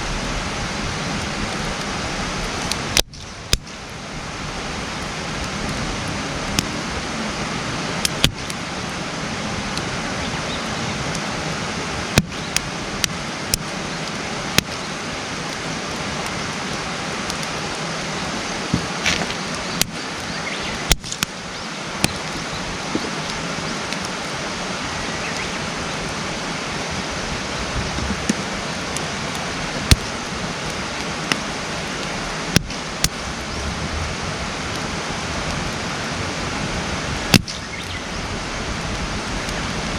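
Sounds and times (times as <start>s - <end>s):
fire rushing hiss: 0.0s - 39.9s
campfire pops and crackles: 1.1s - 6.8s, 8.0s - 8.6s, 12.0s - 24.3s, 27.8s - 33.6s, 37.2s - 39.9s.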